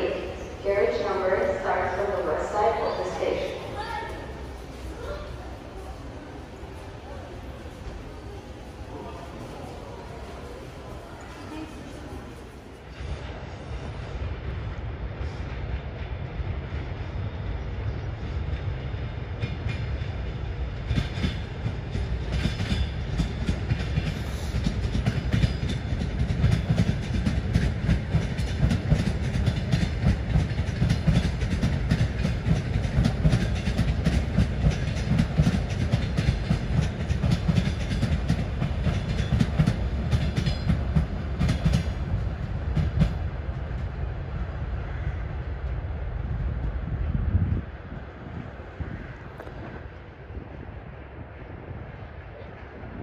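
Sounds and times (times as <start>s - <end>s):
electric train rumble: 0.0s - 53.0s
wheel clatter over rail joints: 20.8s - 43.2s.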